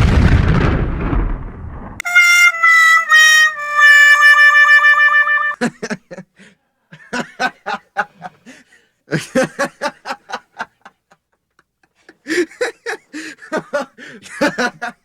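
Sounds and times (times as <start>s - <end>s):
person laughing: 5.5s - 6.4s, 7.0s - 8.4s, 9.1s - 10.9s, 12.1s - 15.0s.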